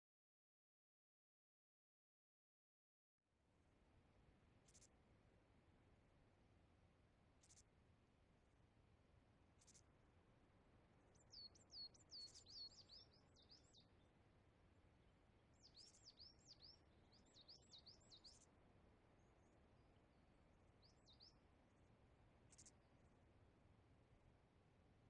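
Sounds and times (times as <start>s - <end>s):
faint bird chirping: 4.6s - 5.0s, 7.4s - 7.7s, 9.5s - 10.0s, 11.0s - 14.2s, 14.8s - 23.3s.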